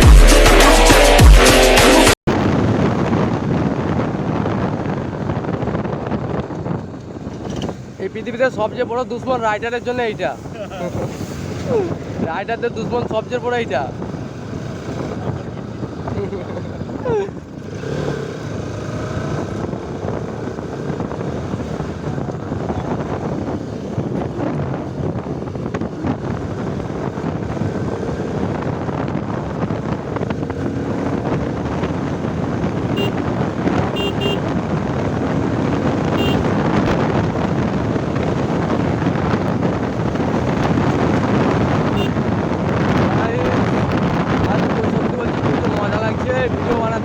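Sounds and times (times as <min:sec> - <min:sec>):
wind noise on microphone: 0:02.3 - 0:47.0
motorcycle engine running: 0:13.9 - 0:47.0
short high beeps: 0:34.0 - 0:34.4.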